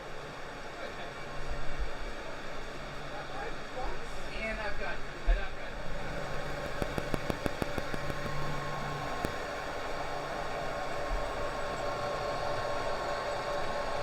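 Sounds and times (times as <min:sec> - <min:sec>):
steady microphone hiss: 0:00.0 - 0:14.0
thin electrical whines: 0:00.0 - 0:14.0
sharp clicks: 0:06.6 - 0:09.6.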